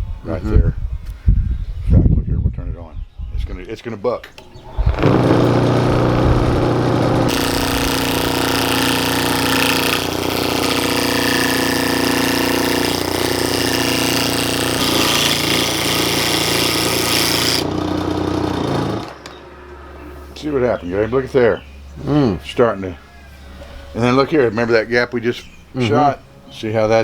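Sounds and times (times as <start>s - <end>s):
gouge chattering cut on wood: 4.4s - 17.7s
wood lathe running: 4.4s - 19.5s.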